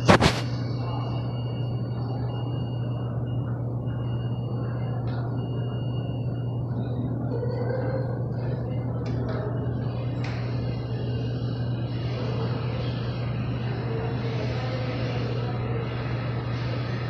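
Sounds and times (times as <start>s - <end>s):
steady low hum: 0.0s - 17.0s
subway train rumble and rail noise: 0.0s - 17.0s.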